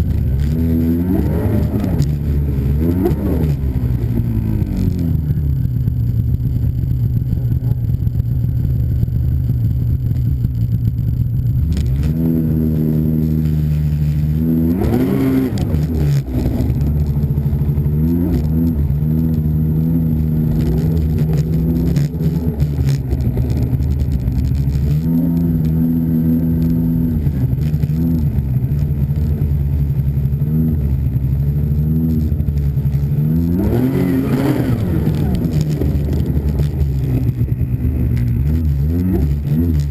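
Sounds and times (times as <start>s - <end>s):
snowmobile engine revving: 0.0s - 7.9s, 11.6s - 39.9s.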